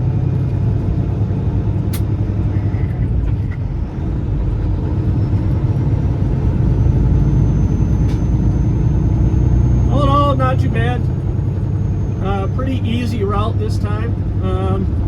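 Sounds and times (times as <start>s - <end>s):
truck diesel engine running: 0.0s - 15.0s
sharp click: 1.9s - 2.1s.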